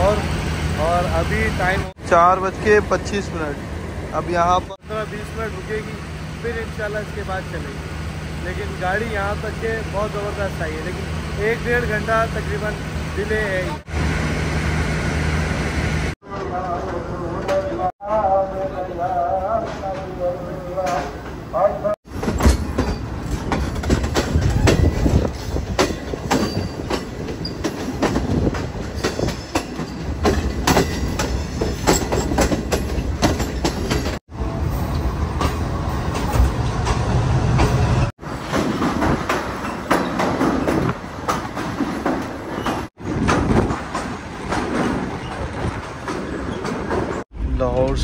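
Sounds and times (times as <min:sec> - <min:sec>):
train wheels rumbling: 0:00.0 - 0:48.0
wheels clattering over rail joints: 0:19.5 - 0:34.2, 0:34.8 - 0:48.0.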